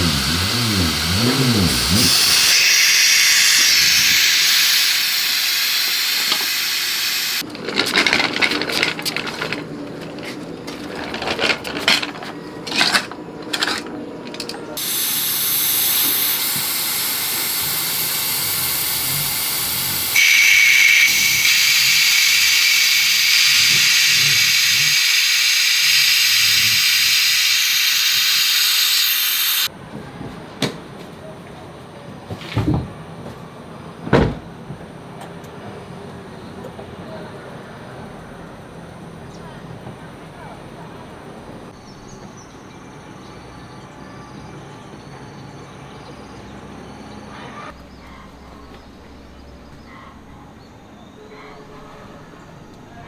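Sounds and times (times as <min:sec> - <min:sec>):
loud hiss of escaping air: 0:00.0 - 0:07.4, 0:14.8 - 0:29.7
irregular clicking and clattering: 0:07.4 - 0:14.8.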